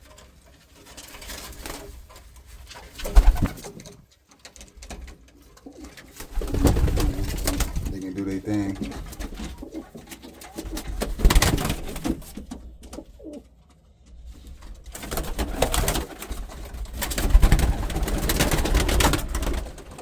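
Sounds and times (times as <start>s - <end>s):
rustling bursts: 1.0s - 3.9s, 6.1s - 12.5s.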